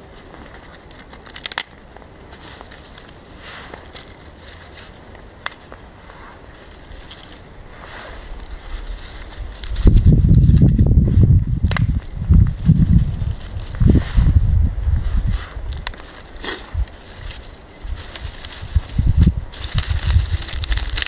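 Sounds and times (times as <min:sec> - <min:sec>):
twigs cracking: 0:00.0 - 0:14.0, 0:15.5 - 0:21.0
hay rustling and crinkling: 0:00.0 - 0:21.0
twig snapping: 0:00.5 - 0:02.0, 0:02.6 - 0:05.8, 0:11.6 - 0:12.7, 0:15.7 - 0:21.0.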